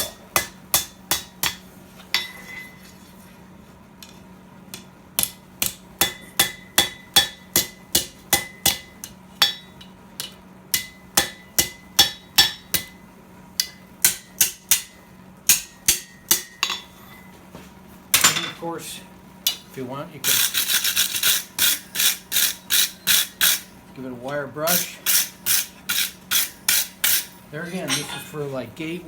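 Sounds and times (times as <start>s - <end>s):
hammer striking hot steel on anvil: 0.0s - 2.8s, 4.0s - 13.0s, 13.6s - 17.3s, 19.4s - 19.7s, 20.3s - 23.8s, 24.7s - 28.4s.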